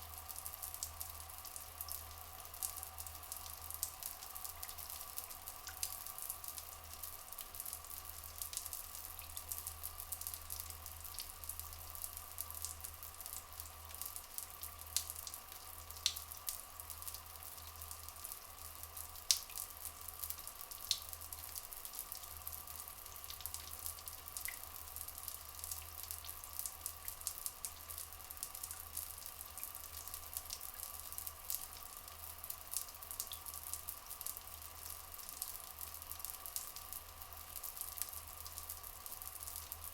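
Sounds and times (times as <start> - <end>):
water dripping and trickling: 0.0 - 39.9.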